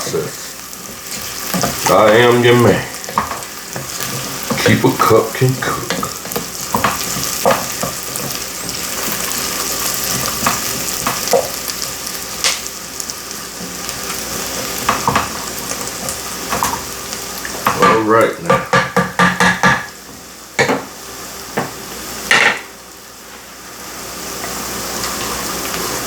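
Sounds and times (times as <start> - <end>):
rice sizzling in oil: 0.0 - 26.0
spoon clicking and scraping pot: 5.9 - 9.2.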